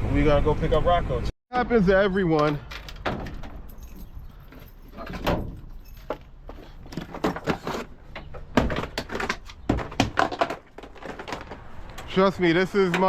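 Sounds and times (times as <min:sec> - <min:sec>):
knocks and thuds: 0:05.0 - 0:11.7.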